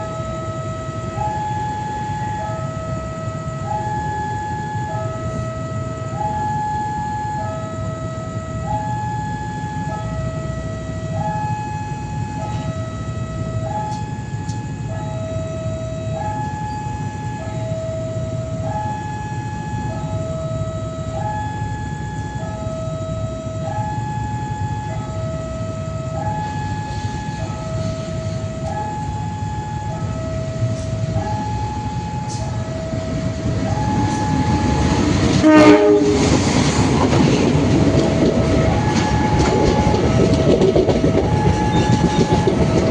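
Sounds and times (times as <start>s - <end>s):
level crossing two-tone alarm: 0.0s - 42.9s
train rumble: 0.0s - 42.9s
train horn blast: 33.6s - 37.0s, 38.4s - 42.9s.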